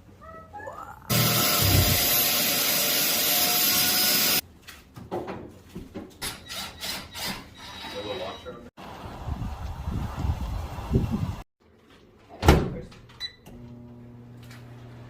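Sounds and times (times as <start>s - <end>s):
power tool running: 1.1s - 4.4s.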